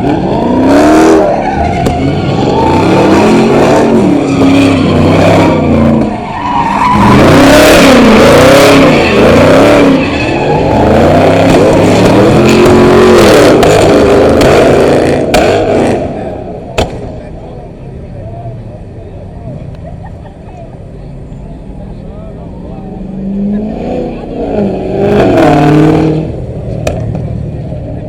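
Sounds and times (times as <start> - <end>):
tyres squealing on pavement: 0.0 - 17.2
car engine revving: 0.0 - 19.0, 21.1 - 28.0
sharp crack: 15.3 - 15.8, 16.7 - 17.3, 26.8 - 27.3.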